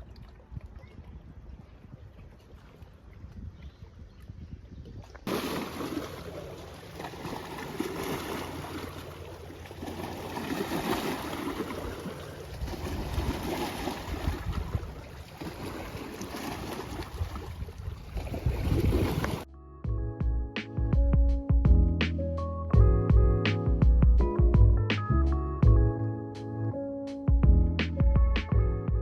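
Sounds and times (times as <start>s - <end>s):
wind buffeting microphone: 0.0s - 19.5s
rushing water: 5.2s - 19.5s
boat engine drone: 5.3s - 16.2s.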